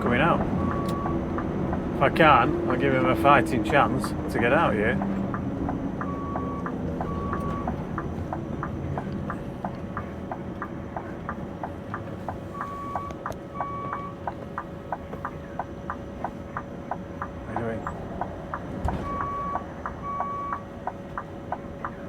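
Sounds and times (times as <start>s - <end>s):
truck engine running low: 0.0s - 22.0s
turn signal relay ticking: 0.0s - 22.0s
short dashboard beeps: 0.6s - 1.2s, 6.0s - 7.8s, 12.3s - 14.3s, 18.9s - 20.7s.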